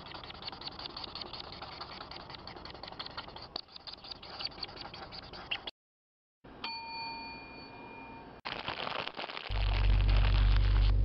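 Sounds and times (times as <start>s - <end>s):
low background rumble: 9.5s - 11.0s.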